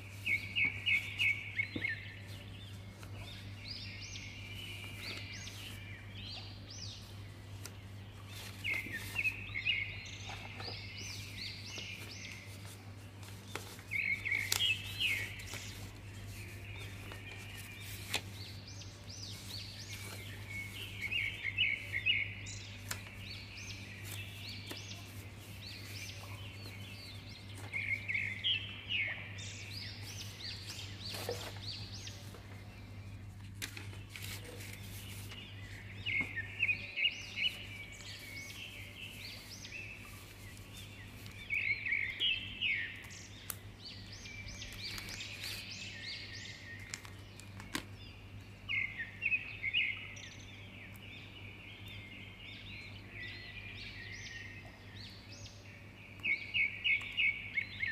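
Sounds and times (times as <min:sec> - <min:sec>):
paper rustling: 0:00.0 - 0:03.6, 0:04.6 - 0:05.8, 0:06.9 - 0:09.5, 0:10.2 - 0:22.0, 0:22.8 - 0:28.2, 0:30.0 - 0:36.7, 0:37.3 - 0:41.6, 0:44.6 - 0:45.9
birds twittering: 0:00.0 - 0:57.9.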